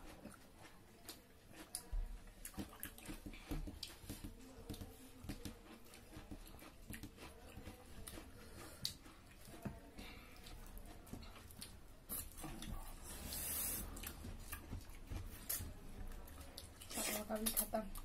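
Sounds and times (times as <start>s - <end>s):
people chewing and lip-smacking: 0.0s - 18.0s.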